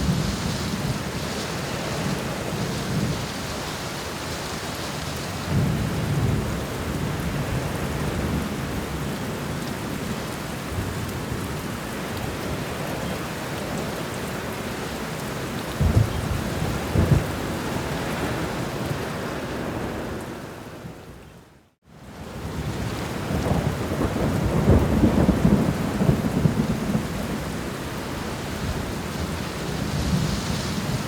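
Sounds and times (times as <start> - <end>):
rain pouring: 0.0 - 31.0
thunder rumbling: 15.7 - 21.0, 22.4 - 31.0.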